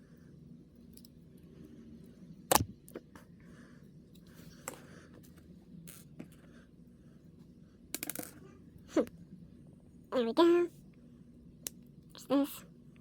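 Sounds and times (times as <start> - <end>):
low steady hum: 0.0 - 13.0
plastic parts snapping together: 2.5 - 2.7.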